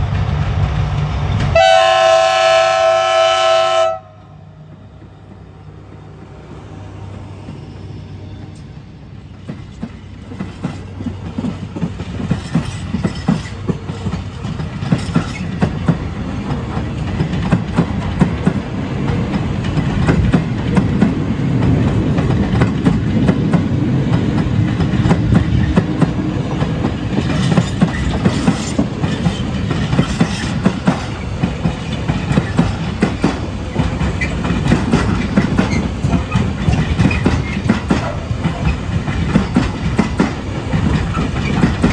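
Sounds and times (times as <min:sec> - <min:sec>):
diesel locomotive rumble: 0:00.0 - 0:41.9
train wheels clacking over rail joints: 0:09.3 - 0:41.9.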